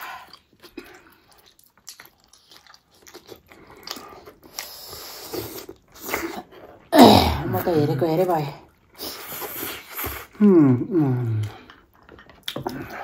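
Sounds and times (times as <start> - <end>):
person chewing and biting: 0.2 - 6.5, 11.4 - 13.0.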